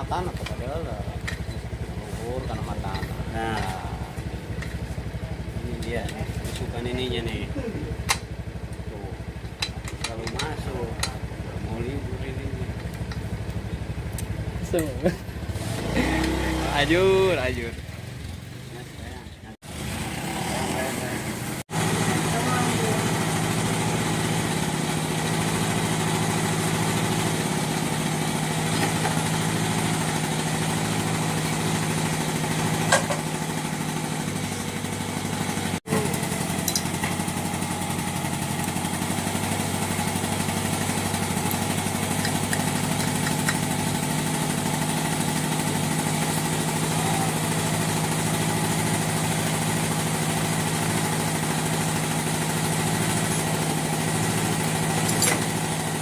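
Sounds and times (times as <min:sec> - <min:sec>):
outboard motor idling: 0:00.0 - 0:19.8, 0:20.8 - 0:56.0.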